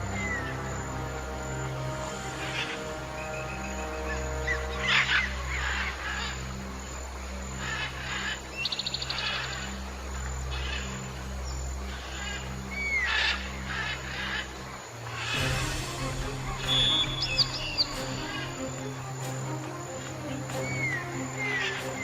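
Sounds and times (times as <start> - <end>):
low musical drone: 0.0 - 22.0
bird calls and chirps: 7.6 - 22.0
bird trill: 15.1 - 22.0
whistled bird call: 15.2 - 19.0.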